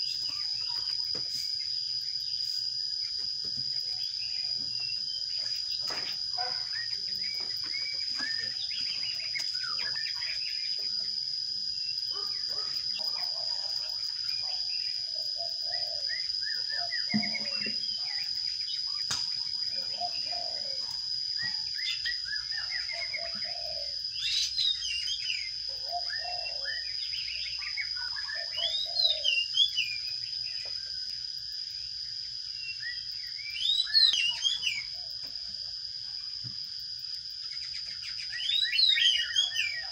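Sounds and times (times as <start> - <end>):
sparrows chirping: 0.0 - 35.7, 36.3 - 39.9
high-pitched insect drone: 0.0 - 39.9.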